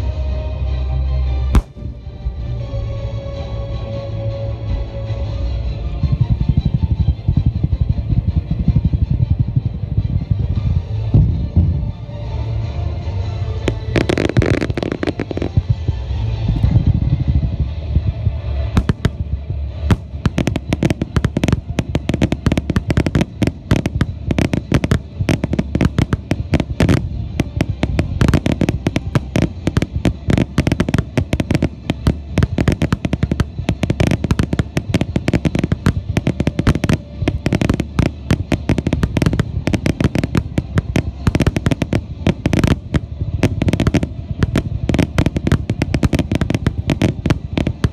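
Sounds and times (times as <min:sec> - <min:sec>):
music playing: 0:00.0 - 0:47.9
fireworks bursting and banging: 0:01.6 - 0:02.9, 0:13.4 - 0:47.9.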